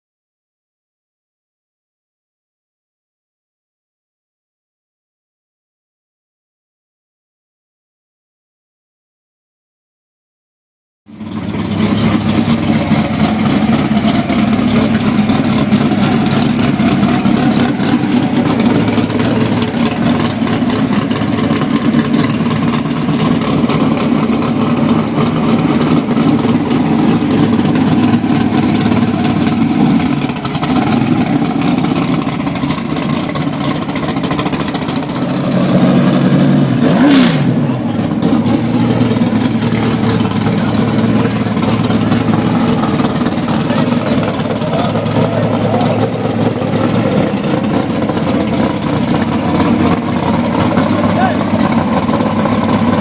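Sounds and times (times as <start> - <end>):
race car engines idling: 11.1 - 53.0.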